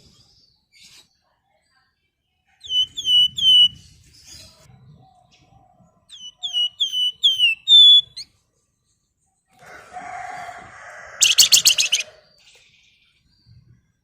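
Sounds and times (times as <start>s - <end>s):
songbird singing: 2.6s - 9.6s, 11.1s - 14.0s.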